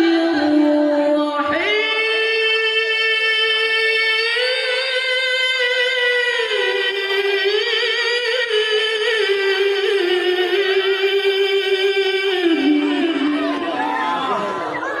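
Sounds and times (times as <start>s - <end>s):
man reciting in a high voice: 0.0s - 15.0s.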